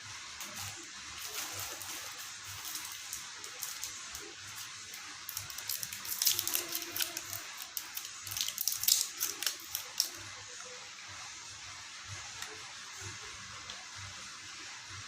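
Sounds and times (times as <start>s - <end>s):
plastic packaging crinkling: 0.4s - 10.2s.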